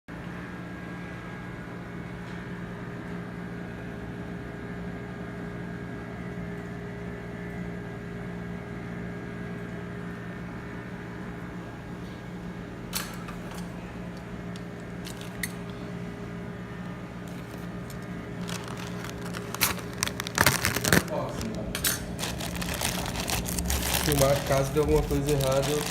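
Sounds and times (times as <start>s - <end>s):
low electrical hum: 0.1s - 25.9s
packaging clicks and rustles: 15.0s - 15.6s, 17.2s - 25.9s.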